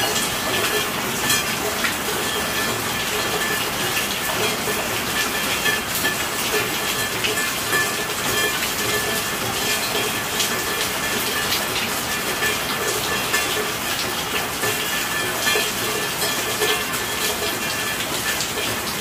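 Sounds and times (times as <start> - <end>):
raindrops ticking: 0.0 - 19.0.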